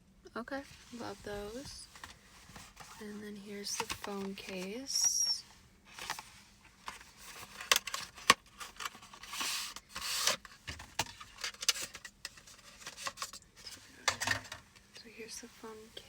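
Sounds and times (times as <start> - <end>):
packaging rustling: 5.9 - 14.5.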